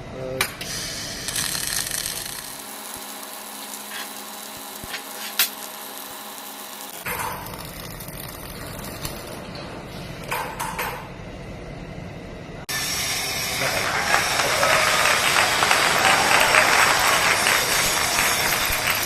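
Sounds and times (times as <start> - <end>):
welding buzzing hiss: 0.6 - 10.3, 12.7 - 19.0.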